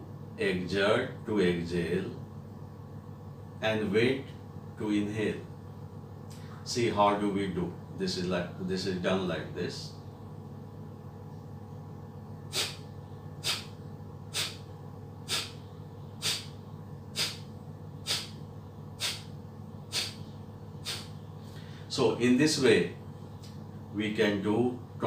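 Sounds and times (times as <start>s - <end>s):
sharp forceful nasal exhalations: 12.5s - 15.6s, 16.2s - 18.4s, 19.0s - 21.8s.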